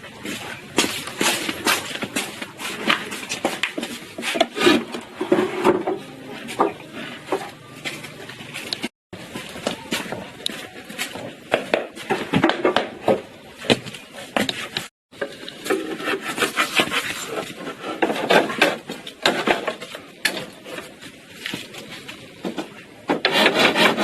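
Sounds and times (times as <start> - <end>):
knocking and scraping on wood: 0.7 - 8.9, 9.7 - 24.0.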